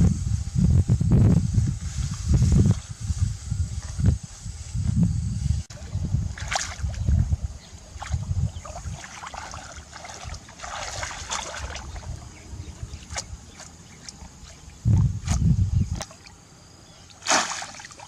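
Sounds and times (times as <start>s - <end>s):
water splashing and sloshing: 6.3s - 7.1s, 8.0s - 16.4s, 17.1s - 18.0s.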